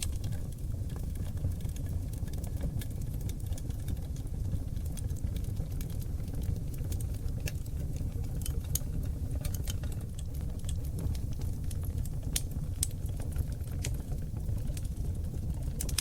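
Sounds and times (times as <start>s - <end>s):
log fire crackling and popping: 0.0s - 16.0s.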